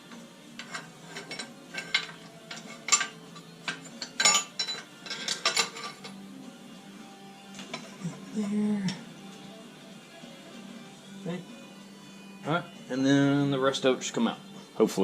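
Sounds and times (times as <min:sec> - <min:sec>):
hand tools and metal parts clinking: 0:00.1 - 0:06.2.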